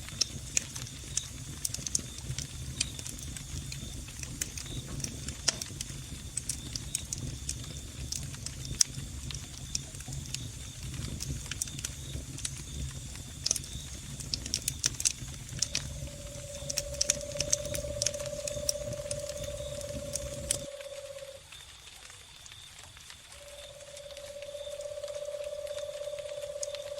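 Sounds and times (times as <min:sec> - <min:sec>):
log fire crackling: 0:00.0 - 0:26.9
crickets chirring: 0:00.1 - 0:26.9
low steady rumble: 0:15.0 - 0:21.4, 0:23.4 - 0:26.9
steady mid-pitched tone: 0:15.6 - 0:21.4, 0:23.4 - 0:26.9.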